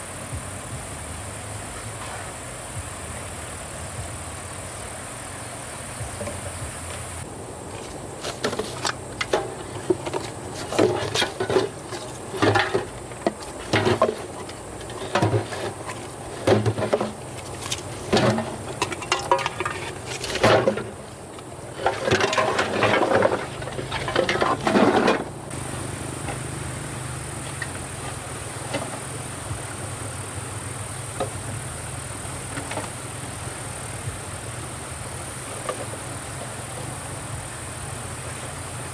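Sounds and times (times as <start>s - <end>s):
insects chirring: 0.0s - 38.9s
objects knocking and rustling: 6.0s - 26.6s.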